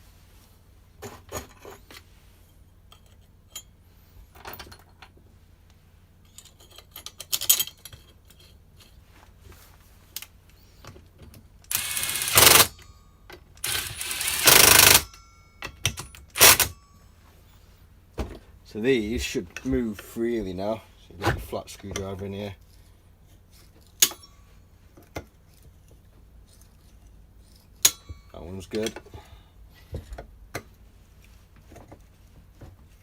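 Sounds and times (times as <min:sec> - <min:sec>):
metal parts and tools clicking: 0:06.2 - 0:09.0, 0:11.7 - 0:16.8
loud noisy bursts: 0:11.7 - 0:12.7, 0:13.6 - 0:15.0.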